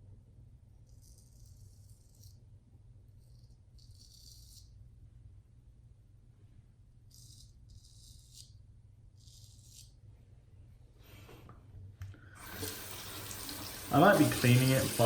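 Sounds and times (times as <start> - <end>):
razor scraping stubble: 0.9 - 2.5, 3.1 - 4.8, 7.0 - 10.0.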